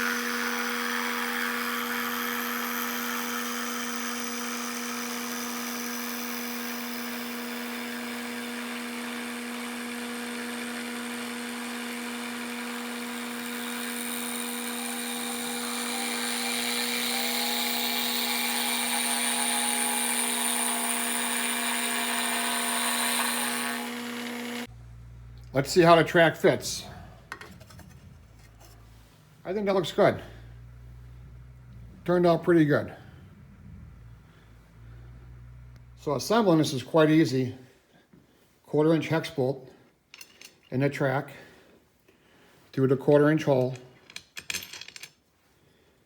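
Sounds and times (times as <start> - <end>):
milling machine motor hum: 0.0 - 36.1
end mill cutting metal: 0.0 - 36.7.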